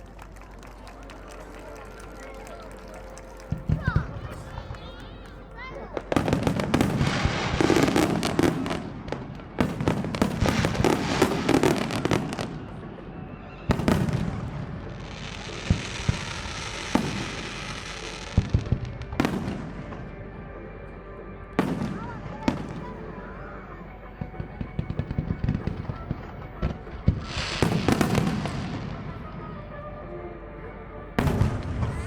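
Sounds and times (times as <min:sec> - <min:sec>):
fireworks crackling: 0:00.0 - 0:20.6, 0:21.6 - 0:23.3, 0:24.4 - 0:29.6, 0:31.2 - 0:32.0
sharp fireworks bangs: 0:06.1 - 0:12.8, 0:27.0 - 0:29.1, 0:31.2 - 0:32.0.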